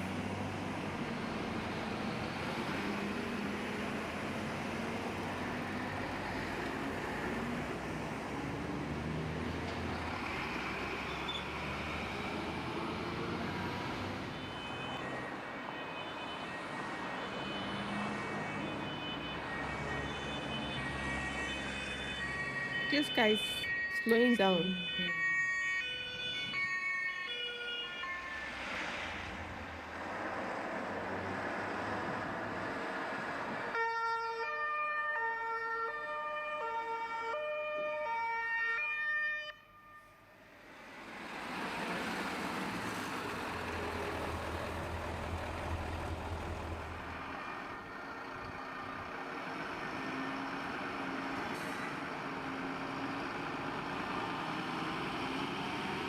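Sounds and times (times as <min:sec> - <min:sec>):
truck engine and road noise: 0:00.0 - 0:56.0
two-tone fire truck siren: 0:10.2 - 0:29.0, 0:33.4 - 0:41.8, 0:47.0 - 0:56.0.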